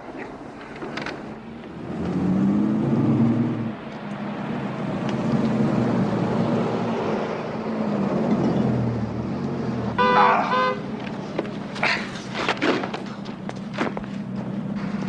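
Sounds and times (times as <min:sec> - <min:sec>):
car engine running: 0:07.7 - 0:15.0.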